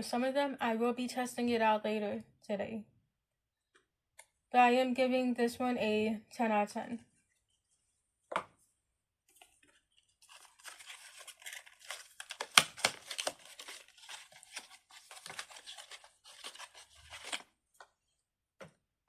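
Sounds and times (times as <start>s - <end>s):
plastic toys crinkling: 9.4s - 17.5s.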